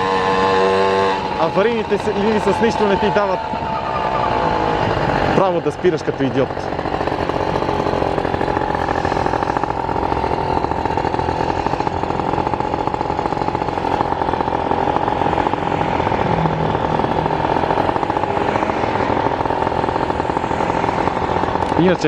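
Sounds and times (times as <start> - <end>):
car engine from inside cabin: 6.7 - 21.9.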